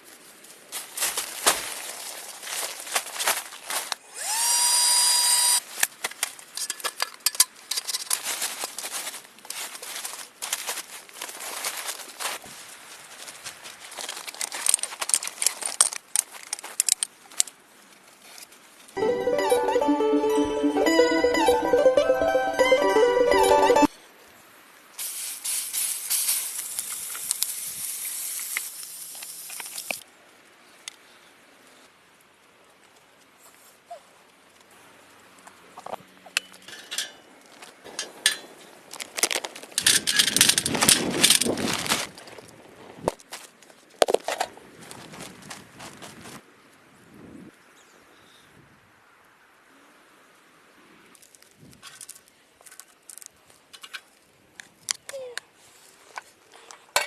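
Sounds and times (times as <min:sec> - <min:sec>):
rustling: 0:00.0 - 0:04.4, 0:05.6 - 0:19.0, 0:35.7 - 0:46.4
small motor whirring: 0:04.1 - 0:05.6.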